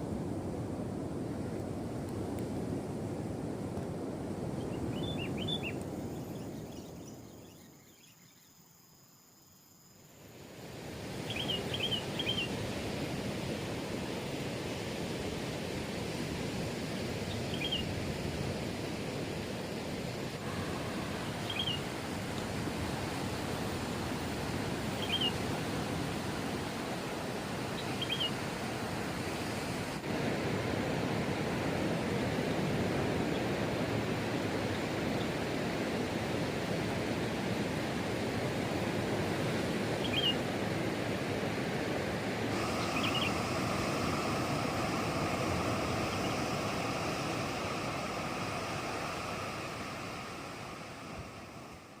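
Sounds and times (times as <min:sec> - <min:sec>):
rushing night ambience: 0:00.0 - 0:52.0
steady higher hum: 0:20.3 - 0:24.1.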